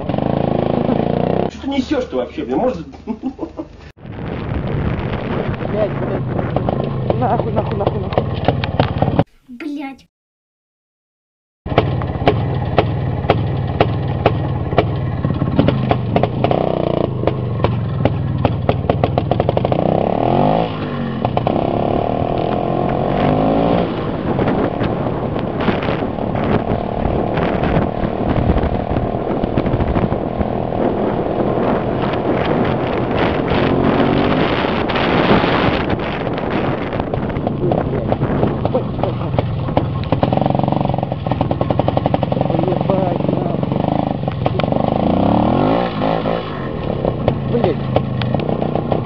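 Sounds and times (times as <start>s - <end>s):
two-stroke motorcycle engine running: 0.0s - 1.5s, 11.7s - 49.0s
sharp engine knocks: 11.7s - 19.6s.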